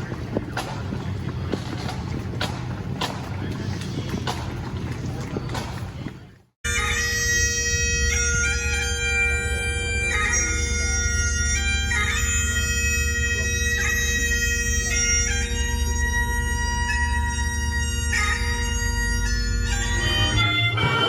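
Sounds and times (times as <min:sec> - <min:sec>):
bagpipes playing a tune: 0:06.7 - 0:21.0.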